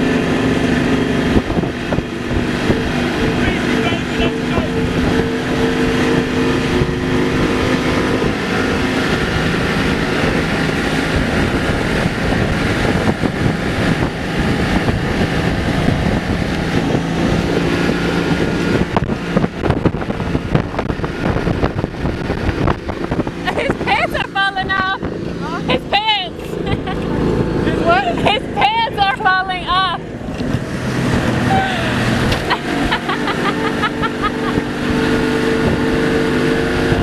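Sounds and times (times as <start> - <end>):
motorboat engine running: 0.0 - 37.0
wind buffeting microphone: 0.0 - 37.0.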